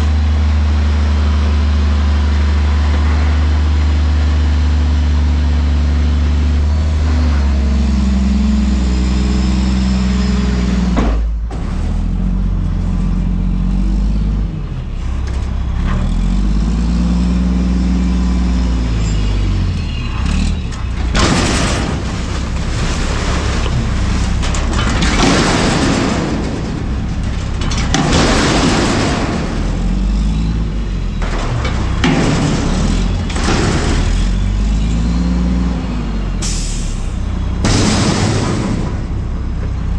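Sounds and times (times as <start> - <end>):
garbage truck diesel engine revving: 0.0 - 39.9
loud rushing crashing bursts: 21.1 - 30.1, 37.6 - 39.2.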